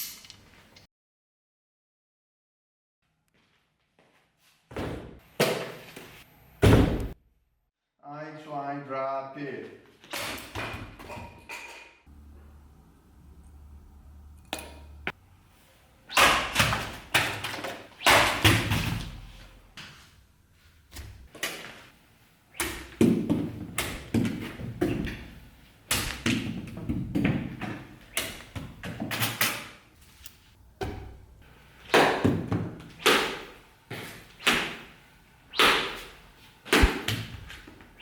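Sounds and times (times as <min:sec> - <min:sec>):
sharp knocks and thuds: 0:36.7 - 0:37.5.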